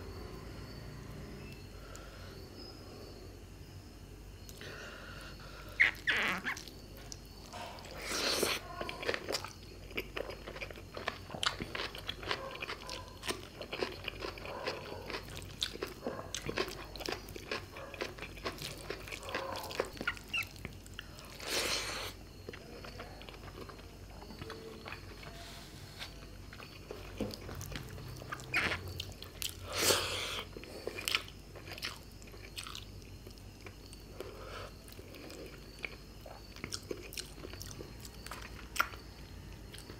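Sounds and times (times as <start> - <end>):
chewing mouth sounds: 7.8 - 21.1, 26.5 - 39.1.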